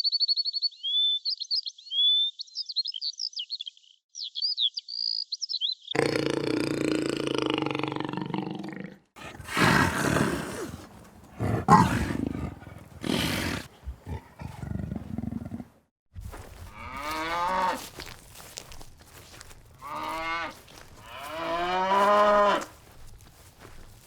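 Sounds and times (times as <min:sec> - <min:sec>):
loud animal calls: 0:09.2 - 0:15.6.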